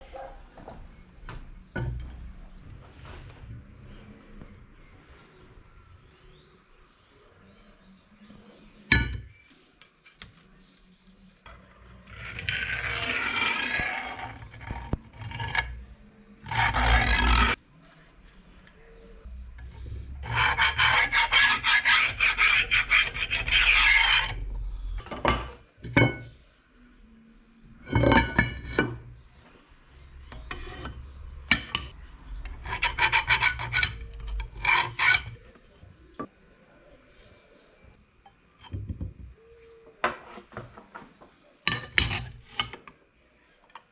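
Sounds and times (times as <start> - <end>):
rasping scraping strokes: 10.2 - 25.4, 30.2 - 35.8.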